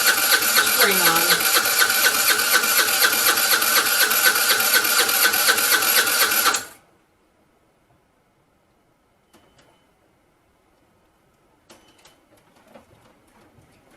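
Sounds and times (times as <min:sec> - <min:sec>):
scooter starter cranking engine: 0:00.0 - 0:06.8.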